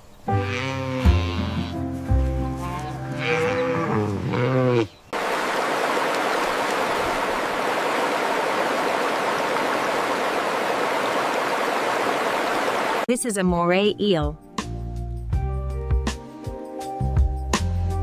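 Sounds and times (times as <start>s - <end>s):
cow mooing: 0.4s - 1.8s, 2.6s - 4.9s.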